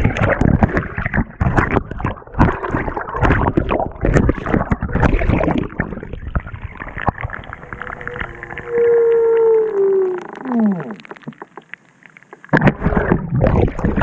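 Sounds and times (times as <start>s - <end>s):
knocks and splashes: 0.0s - 8.2s, 12.4s - 14.0s.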